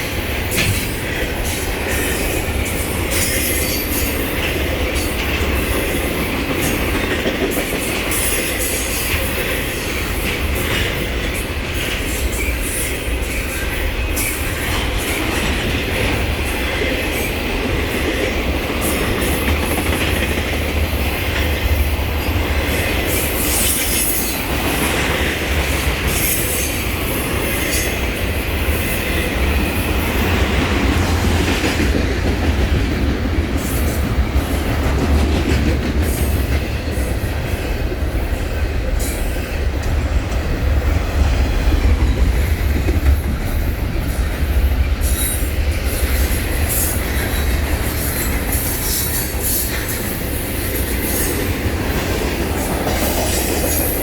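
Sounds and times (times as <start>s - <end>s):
train rumbling past: 0.0s - 54.0s.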